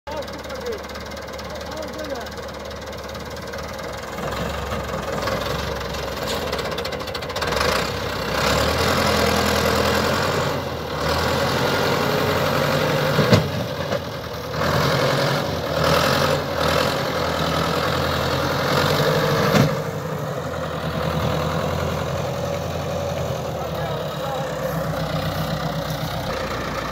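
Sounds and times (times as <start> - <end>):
tractor diesel engine revving: 0.1 - 26.9.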